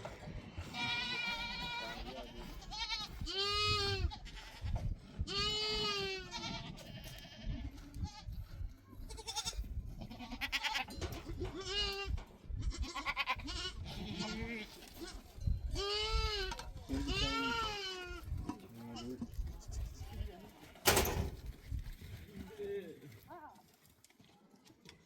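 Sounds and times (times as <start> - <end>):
goats bleating: 0.6 - 8.4, 9.0 - 18.3.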